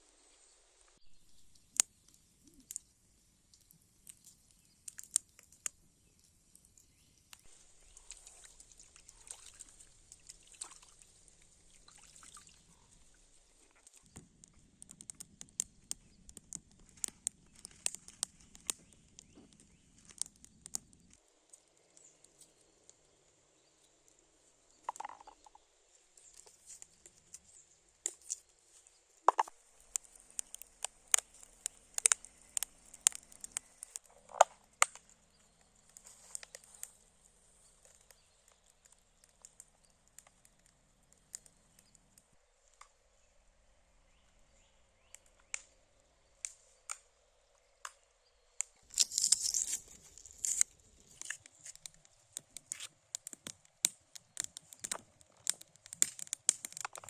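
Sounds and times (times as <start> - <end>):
faint steady hiss: 0.0 - 57.0
wood fire crackling: 0.2 - 42.9, 48.6 - 57.0
meat frying on hot stone: 29.5 - 34.0, 48.8 - 57.0.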